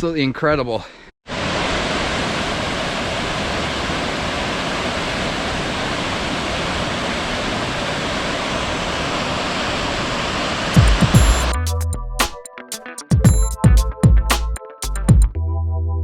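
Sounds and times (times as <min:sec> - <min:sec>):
waterfall rushing: 0:01.3 - 0:11.5.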